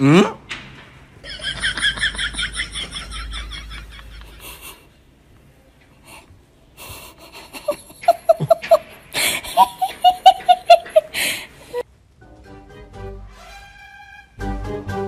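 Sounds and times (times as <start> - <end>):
person laughing hard: 1.3 - 4.9, 7.2 - 11.8
wheezy gasping breaths: 9.1 - 9.6, 11.0 - 11.8.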